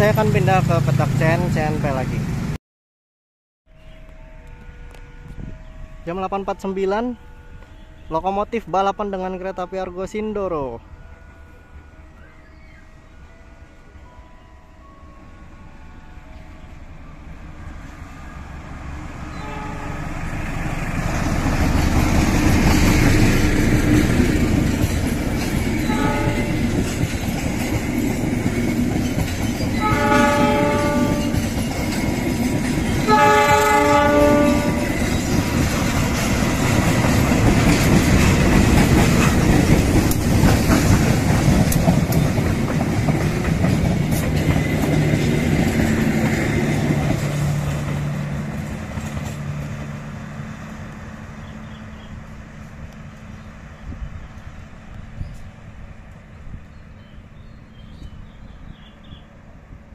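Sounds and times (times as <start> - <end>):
train rumble: 0.0 - 2.6, 3.8 - 59.9
locomotive horn blasts: 19.3 - 20.2, 25.8 - 26.7, 29.8 - 31.4, 33.1 - 35.0
train wheels clattering: 21.1 - 50.0.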